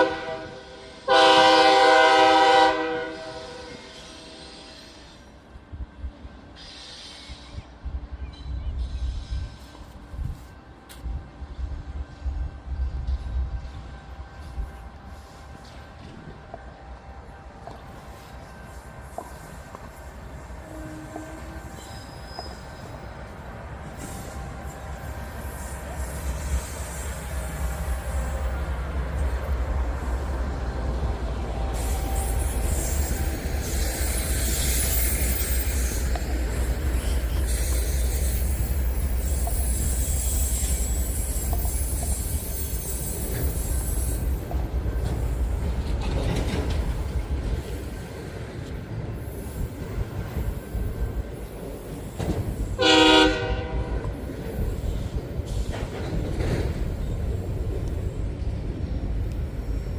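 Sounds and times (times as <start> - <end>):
train horn blast: 0.0 - 5.2, 20.2 - 22.6, 52.8 - 54.2
freight train rumbling: 0.0 - 59.9
train wheel squeal: 3.2 - 5.6, 6.4 - 10.6, 11.5 - 59.9.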